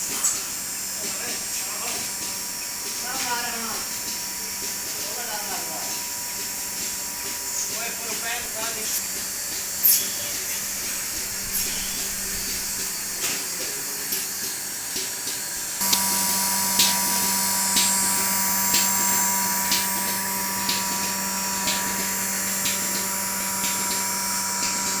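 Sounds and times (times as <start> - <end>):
milking machine hissing: 0.0 - 25.0
steady hum: 15.5 - 25.0.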